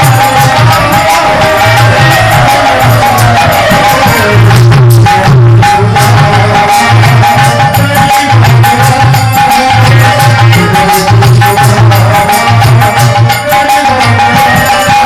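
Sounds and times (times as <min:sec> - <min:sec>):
drum and tabla percussion: 0:00.0 - 0:15.0.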